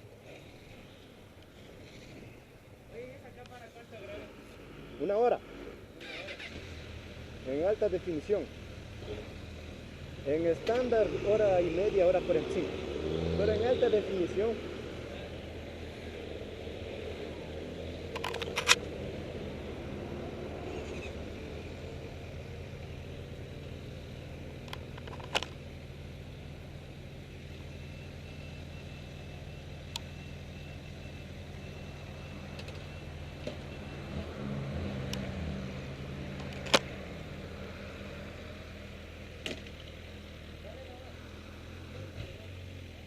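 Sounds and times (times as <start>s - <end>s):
sharp clicks: 18.1s - 18.9s.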